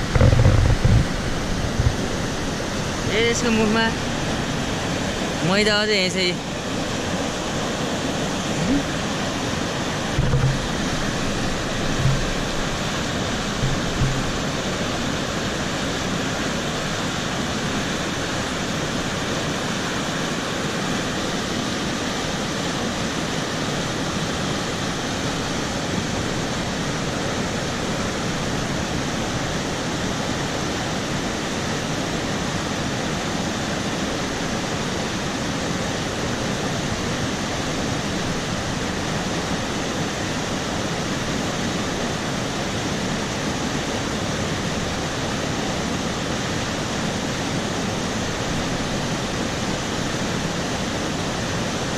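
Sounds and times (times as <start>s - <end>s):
dull low bumps: 0.0s - 3.0s, 10.0s - 15.3s
stream rushing: 0.0s - 51.9s.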